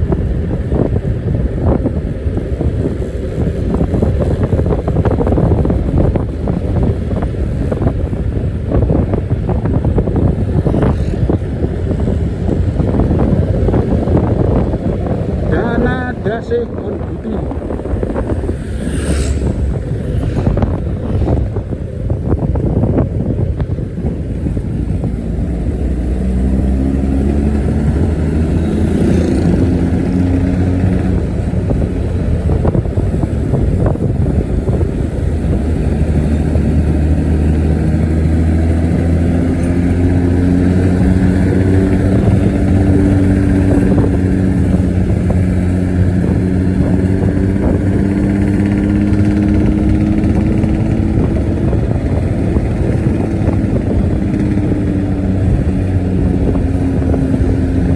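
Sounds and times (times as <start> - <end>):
bus diesel engine under load: 0.0 - 57.9.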